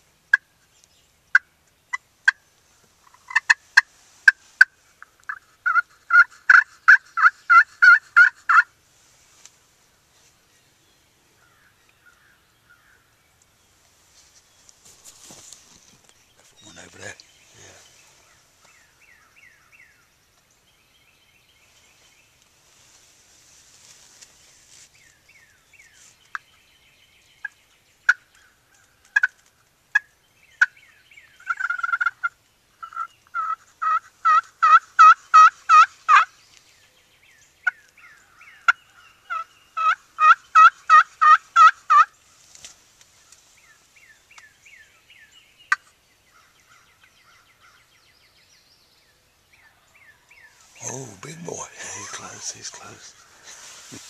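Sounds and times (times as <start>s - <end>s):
turkey clucks: 3.0s - 8.7s, 29.1s - 30.7s, 31.4s - 36.3s, 39.3s - 42.1s
turkey yelping: 5.3s - 8.7s, 31.5s - 36.3s, 39.3s - 42.1s.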